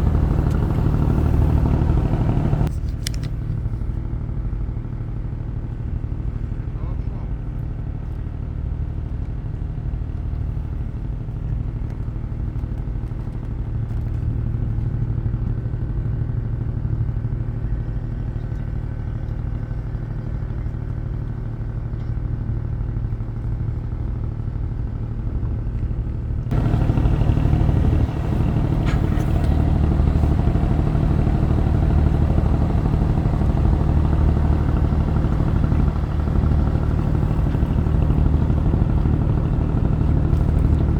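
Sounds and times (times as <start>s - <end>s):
low engine drone: 0.0s - 2.7s, 26.5s - 40.9s.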